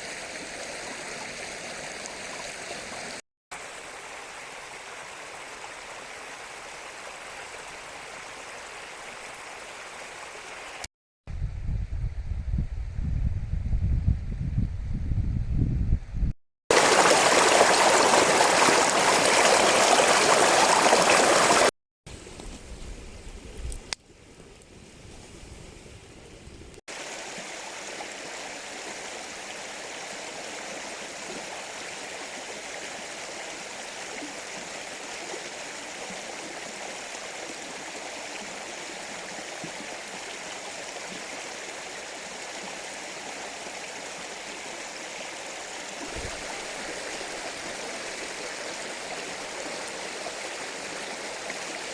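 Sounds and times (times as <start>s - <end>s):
stream rushing over rocks: 16.7s - 21.7s, 26.9s - 51.9s.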